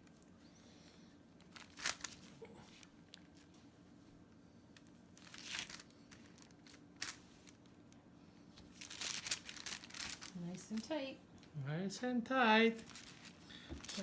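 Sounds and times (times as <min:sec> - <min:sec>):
wrapping crinkling and rustling: 0:01.4 - 0:03.7, 0:04.7 - 0:11.5, 0:12.6 - 0:14.0.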